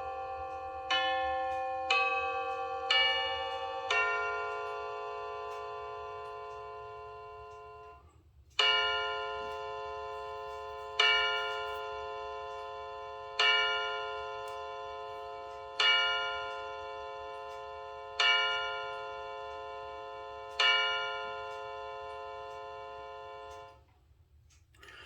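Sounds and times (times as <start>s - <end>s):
clock chime bell tone: 0.0s - 23.8s.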